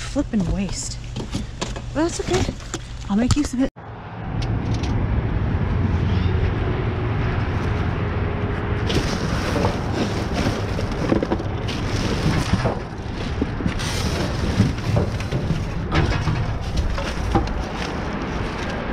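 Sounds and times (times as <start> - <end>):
items rustling in a dumpster: 0.2 - 3.5, 8.8 - 18.9.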